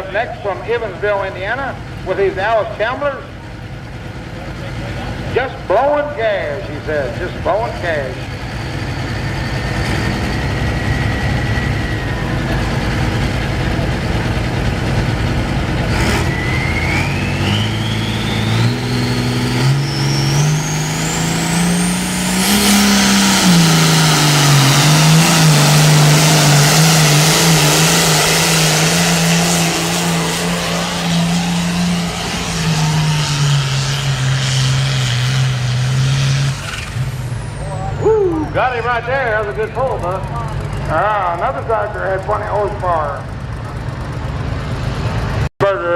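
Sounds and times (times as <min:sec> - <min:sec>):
tractor engine revving under load: 0:00.0 - 0:45.5
rising whistle: 0:08.6 - 0:12.8, 0:16.1 - 0:27.1, 0:30.6 - 0:34.6, 0:37.6 - 0:39.0
loud rushing noise: 0:09.1 - 0:37.4.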